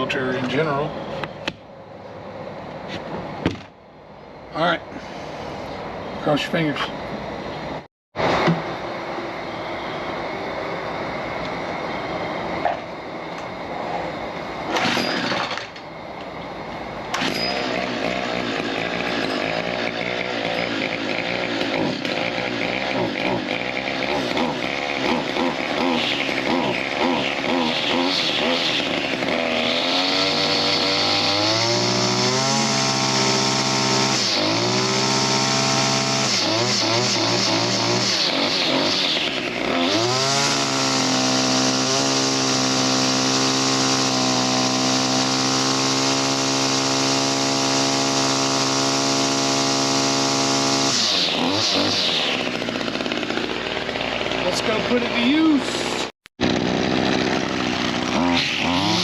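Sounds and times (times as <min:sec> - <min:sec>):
sharp engine knocks: 0:03.1 - 0:03.8
string trimmer engine running: 0:17.1 - 0:59.0.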